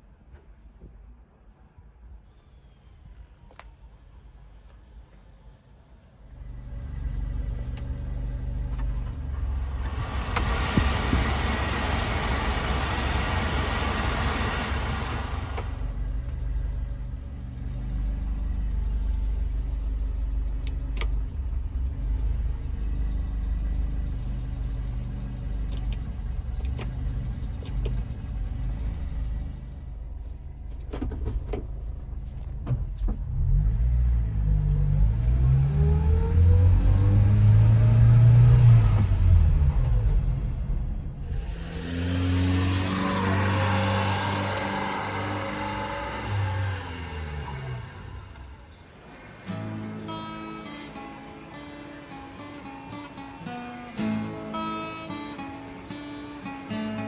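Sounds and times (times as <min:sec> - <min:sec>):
engine revving: 0:06.3 - 0:31.2, 0:31.8 - 0:57.0
truck engine idling: 0:06.3 - 0:33.4, 0:38.7 - 0:57.0
loud hiss: 0:09.8 - 0:15.8
clicks: 0:25.6 - 0:28.2.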